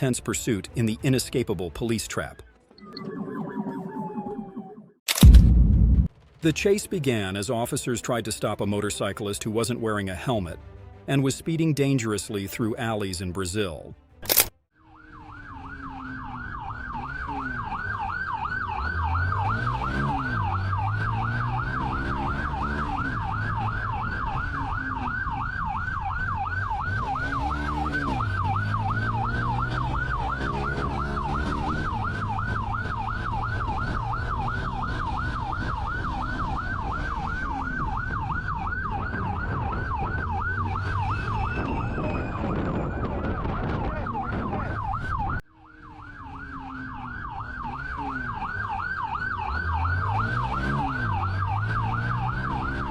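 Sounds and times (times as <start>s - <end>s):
police siren yelping: 2.8s - 5.1s, 14.8s - 52.9s
vehicle engine revving: 15.4s - 25.7s, 26.3s - 42.0s, 45.8s - 52.9s.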